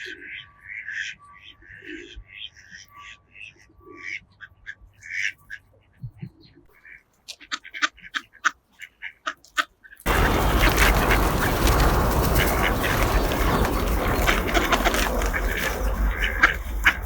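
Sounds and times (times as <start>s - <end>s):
ducks quacking: 0.0s - 6.0s, 6.7s - 17.0s
loud rushing noise with rumble: 10.1s - 17.0s.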